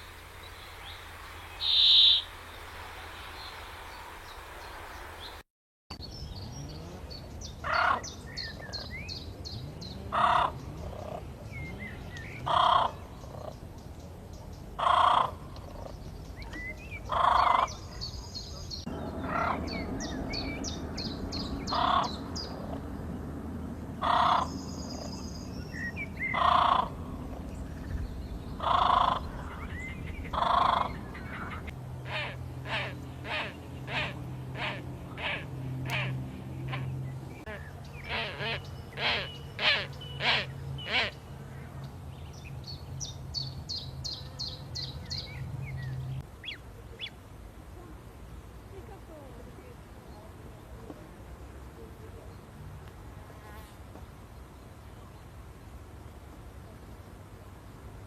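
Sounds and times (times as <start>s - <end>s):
high bird chirps and trills: 0.5s - 2.6s
bird calling harshly: 1.5s - 2.4s, 37.5s - 41.2s
low hum: 18.8s - 37.9s.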